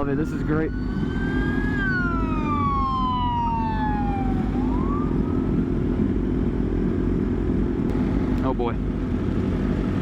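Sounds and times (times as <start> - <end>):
police siren wailing: 0.0 - 5.9
low engine and wind rumble: 0.0 - 10.0.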